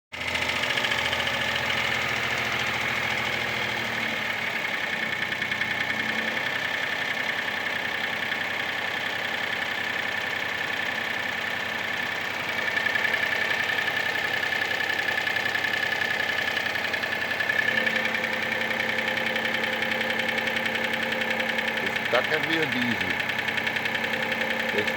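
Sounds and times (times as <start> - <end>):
car engine running: 0.2 - 24.9.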